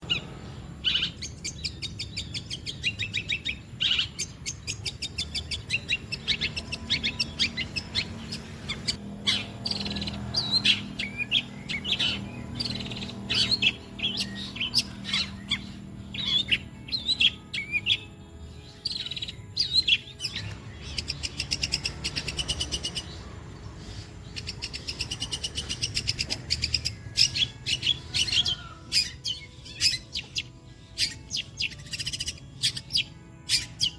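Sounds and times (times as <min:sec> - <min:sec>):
shrike chattering song: 0:00.0 - 0:18.1.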